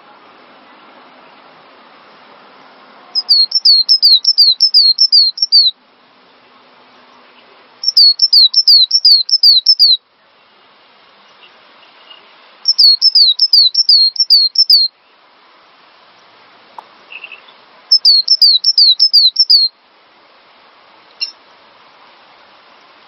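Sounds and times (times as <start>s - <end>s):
bird singing whistled notes: 3.2s - 5.8s, 7.8s - 10.0s, 12.0s - 15.0s, 17.1s - 19.8s, 21.2s - 21.4s.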